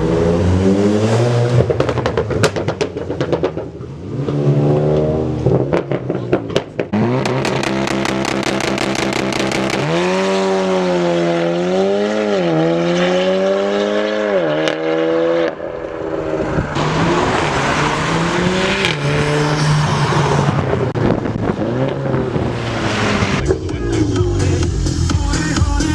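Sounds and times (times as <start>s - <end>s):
loud car exhaust at high revs: 6.9s - 15.6s.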